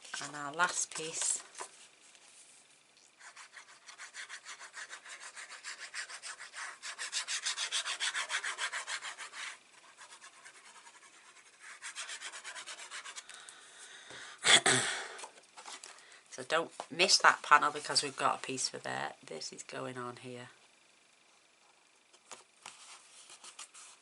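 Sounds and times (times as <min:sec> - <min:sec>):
paper rubbed onto card: 0:03.2 - 0:13.2.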